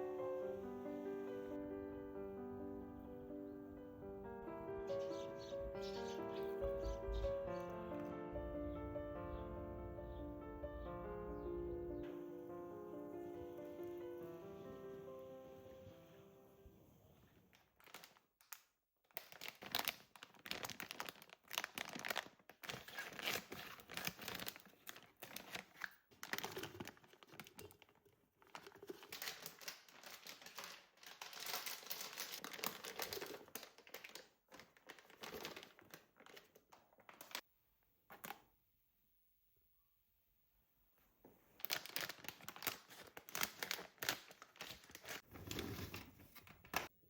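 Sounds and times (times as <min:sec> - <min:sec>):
rustling and crinkling: 0:17.2 - 0:37.4, 0:41.2 - 0:46.9.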